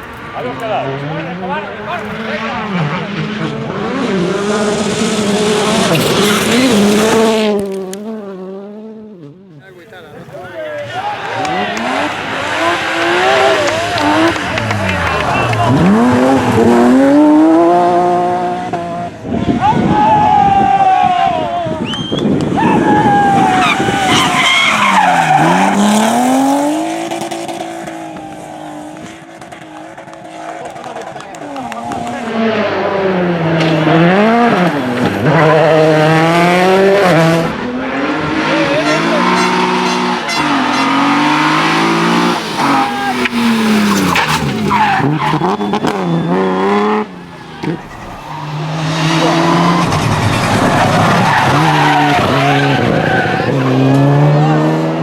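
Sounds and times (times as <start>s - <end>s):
car engine accelerating: 0.0s - 20.6s, 21.4s - 55.0s
tyres sliding: 9.8s - 17.4s, 34.6s - 54.0s.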